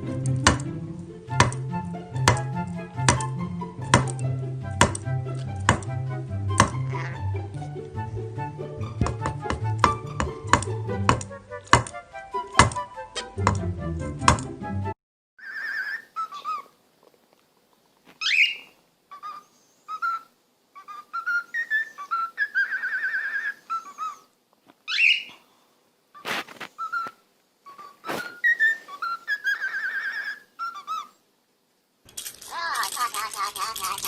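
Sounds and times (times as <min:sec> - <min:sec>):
parrot whistling warbling notes: 0:06.5 - 0:07.4, 0:19.2 - 0:24.3.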